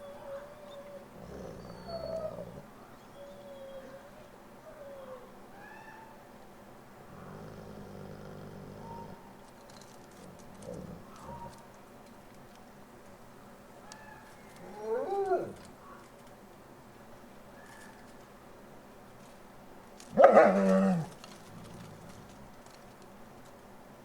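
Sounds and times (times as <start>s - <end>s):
wolves whining and whimpering: 0.0s - 6.2s, 7.1s - 11.7s, 13.9s - 15.7s, 20.2s - 22.8s.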